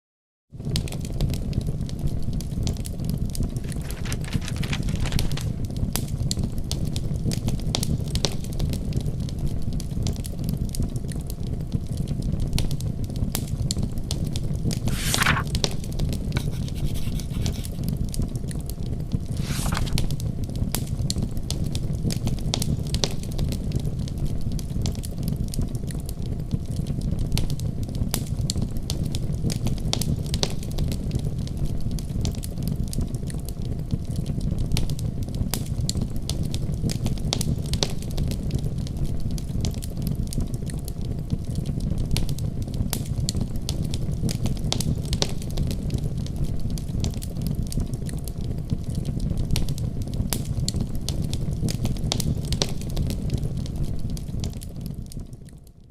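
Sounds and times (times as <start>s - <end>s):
wood fire crackling: 0.6s - 55.6s.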